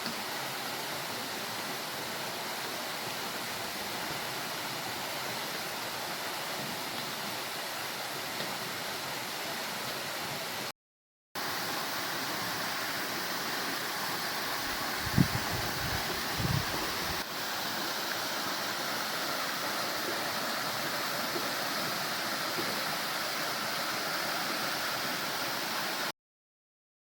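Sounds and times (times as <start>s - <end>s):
waterfall rushing: 11.4s - 26.1s.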